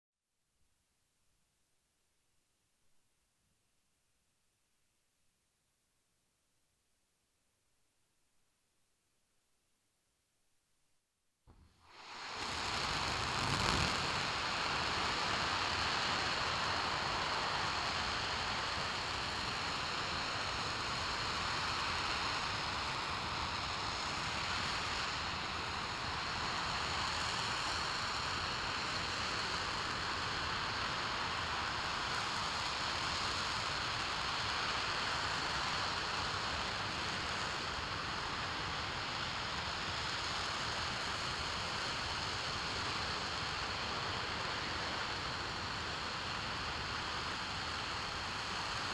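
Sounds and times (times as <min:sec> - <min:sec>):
faint high whine: 0:11.5 - 0:48.9
rocket engine roaring: 0:12.2 - 0:17.2.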